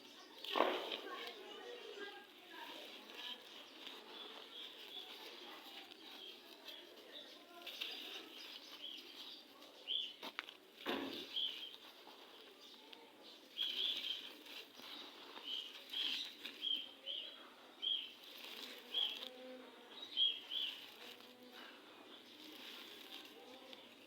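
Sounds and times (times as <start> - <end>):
sand crumbling: 0.2 - 17.2, 17.8 - 19.4, 20.1 - 24.0
sharp crackles: 0.3 - 17.2, 17.8 - 19.4, 20.0 - 24.0
small bird chirping: 11.2 - 21.4.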